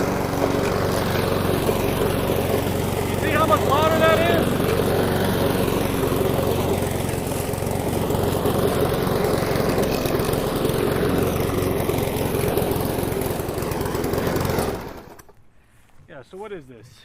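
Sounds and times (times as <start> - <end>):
lawn mower engine running: 0.0 - 15.4.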